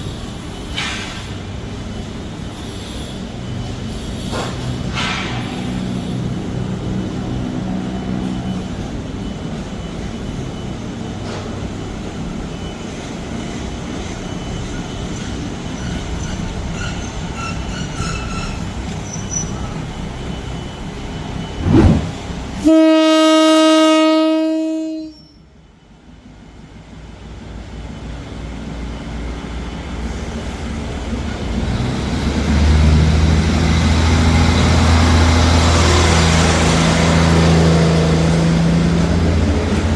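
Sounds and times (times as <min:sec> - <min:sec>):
train rumbling: 0:15.2 - 0:22.7
loud train horn blast: 0:22.6 - 0:25.2.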